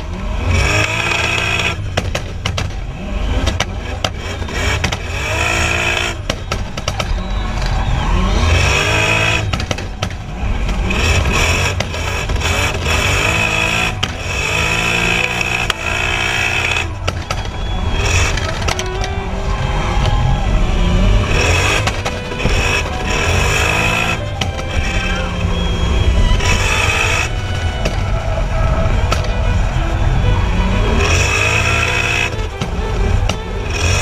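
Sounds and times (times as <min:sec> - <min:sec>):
car engine revving hard: 0:00.0 - 0:34.0
tyre squeal: 0:02.7 - 0:34.0.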